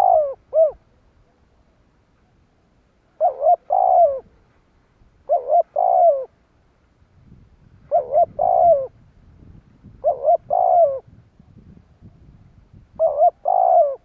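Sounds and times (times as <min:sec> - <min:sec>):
dove cooing: 0:00.0 - 0:01.0, 0:03.2 - 0:04.4, 0:05.2 - 0:06.4, 0:07.9 - 0:09.0, 0:09.8 - 0:11.2, 0:12.9 - 0:14.0.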